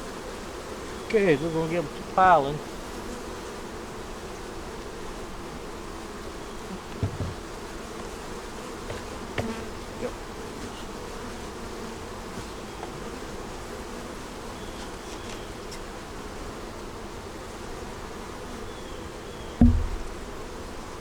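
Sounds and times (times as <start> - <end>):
bees buzzing: 0.0 - 21.0
loud low thump: 7.0 - 7.4, 19.6 - 20.2.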